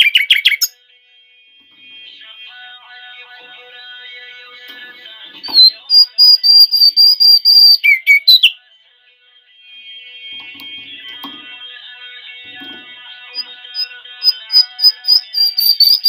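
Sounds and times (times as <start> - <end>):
bird whistled trill: 0.0 - 0.8, 5.5 - 8.6, 13.8 - 16.0
faint background music: 0.0 - 16.0.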